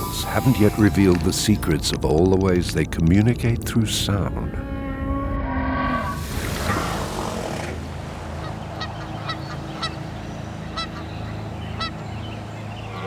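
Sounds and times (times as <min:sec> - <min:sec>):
steady low hum: 0:06.0 - 0:13.0.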